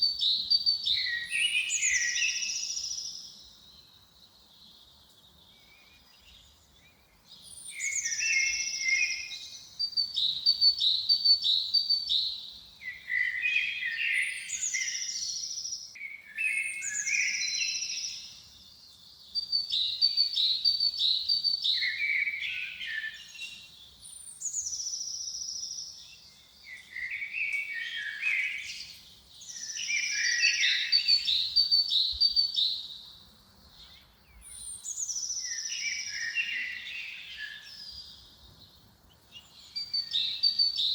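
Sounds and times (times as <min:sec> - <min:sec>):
songbird singing trills: 0:00.0 - 0:40.9.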